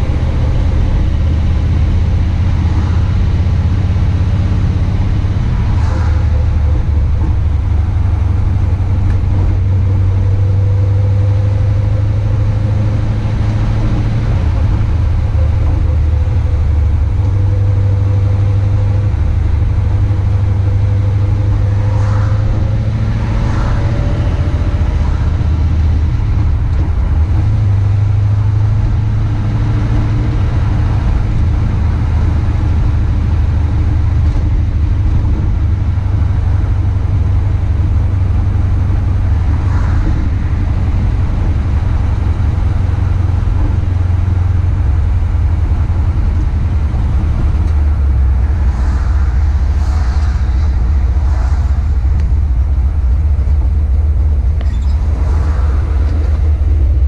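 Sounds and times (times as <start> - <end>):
car engine and exhaust drone: 0.0 - 57.0.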